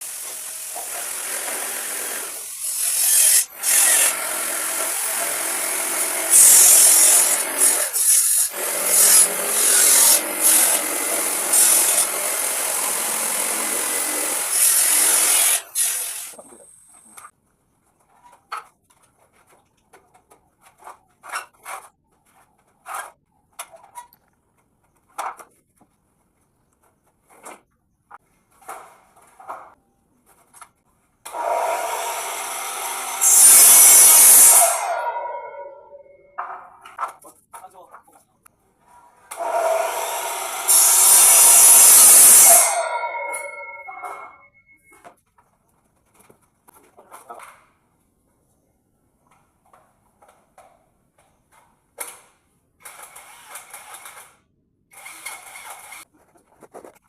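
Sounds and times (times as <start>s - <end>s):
power tool cutting wood: 0.0s - 16.6s, 31.3s - 35.6s, 39.3s - 44.2s, 54.9s - 56.0s.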